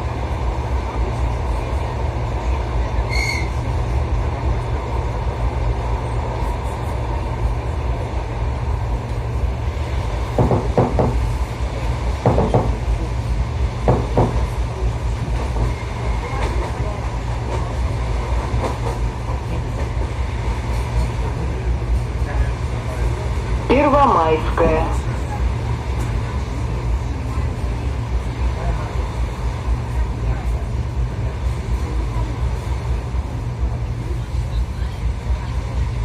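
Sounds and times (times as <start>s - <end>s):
train rumble inside carriage: 0.0s - 36.0s
train wheels knocking: 10.2s - 11.3s, 12.2s - 13.0s, 13.8s - 14.6s.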